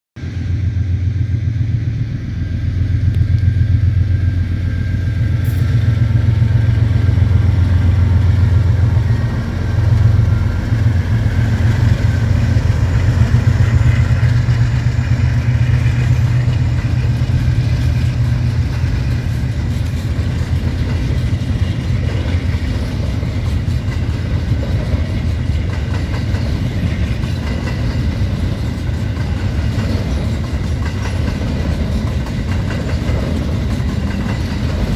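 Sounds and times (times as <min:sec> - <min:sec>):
locomotive engines droning: 0:00.2 - 0:34.9
wagon wheels rumbling on rail: 0:00.2 - 0:34.9.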